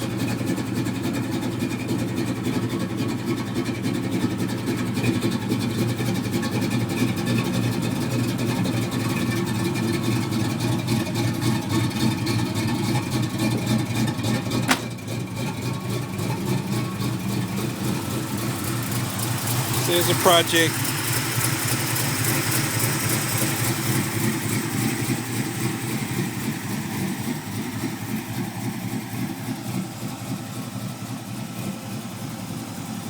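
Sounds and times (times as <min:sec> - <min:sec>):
car engine idling: 0:00.0 - 0:33.0
sharp knock: 0:14.7 - 0:14.9.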